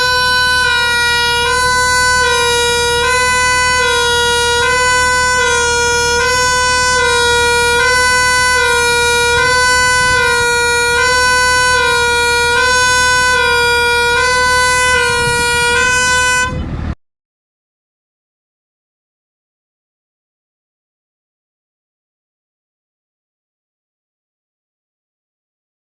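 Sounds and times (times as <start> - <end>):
two-tone fire engine siren: 0.0 - 17.0.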